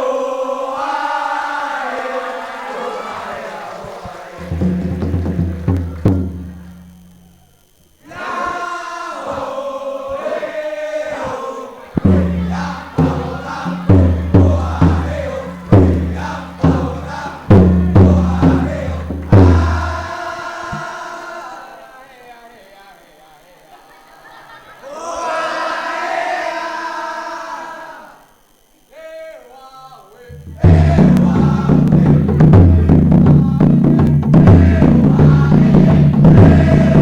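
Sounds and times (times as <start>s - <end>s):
male choir singing: 0.0s - 6.7s, 8.0s - 22.6s, 24.4s - 28.2s, 30.4s - 37.0s
low accompaniment: 4.4s - 7.0s
heavy low beats: 12.0s - 20.1s, 30.3s - 37.0s.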